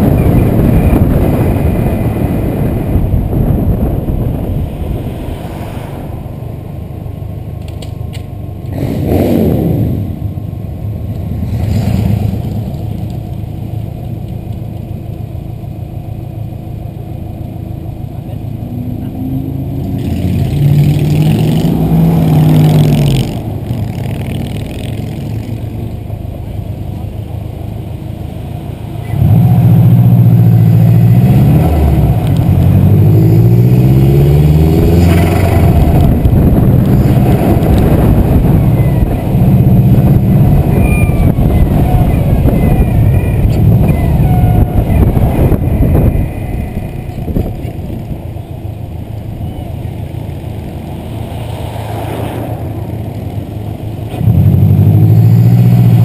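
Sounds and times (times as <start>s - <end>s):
car engine accelerating hard: 18.1s - 25.8s, 29.1s - 46.2s.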